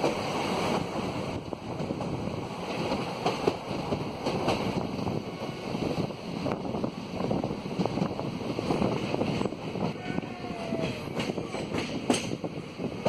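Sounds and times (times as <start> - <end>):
train wheels rumbling on rails: 0.0 - 13.0
wind rushing over microphone: 0.1 - 13.0.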